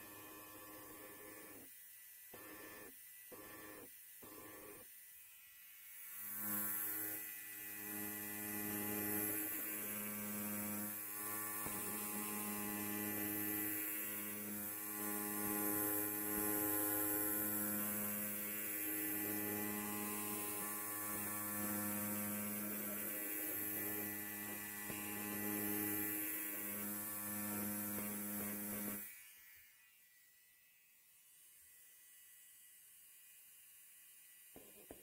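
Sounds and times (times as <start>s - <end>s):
electric hair clipper buzzing: 0.0s - 35.0s.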